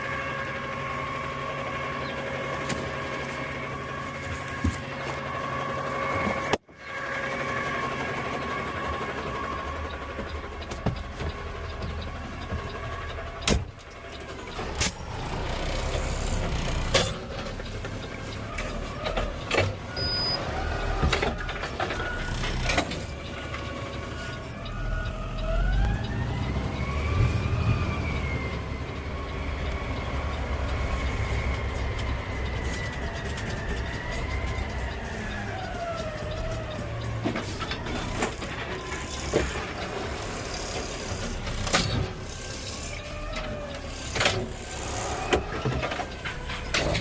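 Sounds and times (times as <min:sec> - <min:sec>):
garbage truck engine rumble: 0:00.0 - 0:47.0
rising whine: 0:22.1 - 0:39.8.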